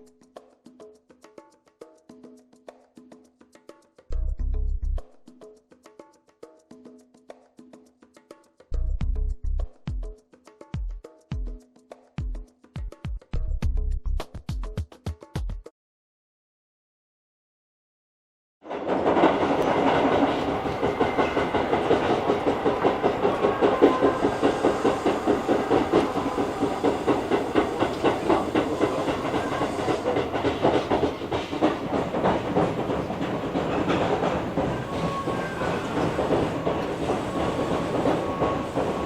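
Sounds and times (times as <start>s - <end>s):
train wheels clattering: 18.7s - 39.0s.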